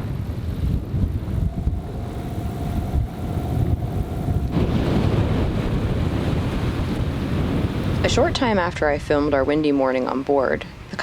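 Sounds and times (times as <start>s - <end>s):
rushing hiss of wind: 0.0s - 11.0s
wind buffeting the microphone: 0.0s - 11.0s
faint steady whistle: 1.1s - 7.0s.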